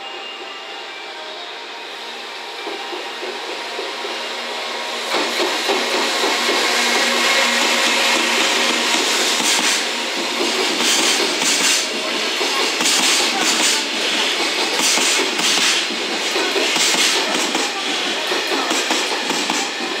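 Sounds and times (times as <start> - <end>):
electric locomotive passing: 0.0 - 20.0
wheels clickety-clack on rail joints: 5.1 - 20.0.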